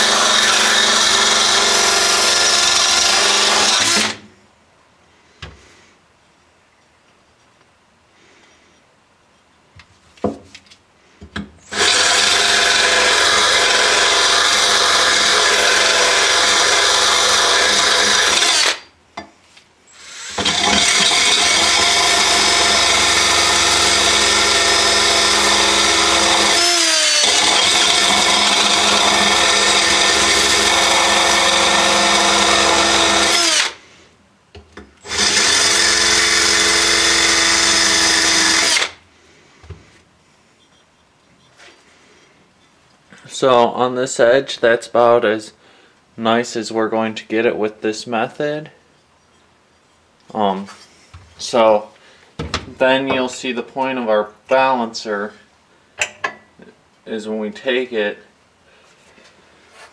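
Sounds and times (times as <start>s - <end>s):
drill grinding mower blade: 0.0s - 4.2s, 11.7s - 18.9s, 19.9s - 33.8s, 35.0s - 39.0s.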